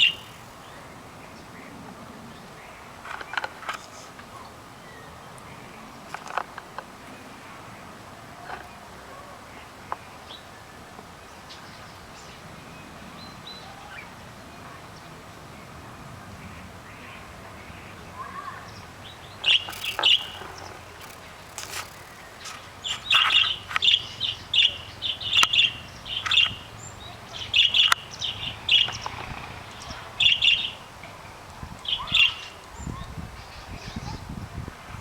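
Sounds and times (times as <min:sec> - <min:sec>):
canaries chirping: 0:00.0 - 0:00.7, 0:19.2 - 0:30.8
sharp clicks: 0:19.4 - 0:24.0.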